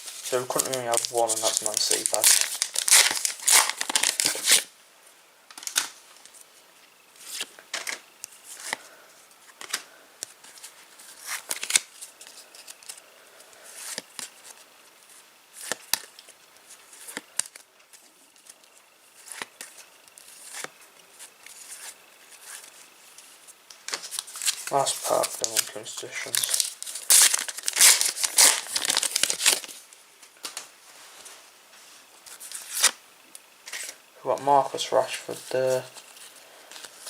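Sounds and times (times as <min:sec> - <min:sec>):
cards being handled: 0:00.0 - 0:04.7, 0:09.5 - 0:13.0, 0:13.7 - 0:14.6, 0:19.2 - 0:29.8, 0:32.3 - 0:33.0
foil wrapper crinkling: 0:00.0 - 0:04.7, 0:09.6 - 0:13.0, 0:23.8 - 0:29.8.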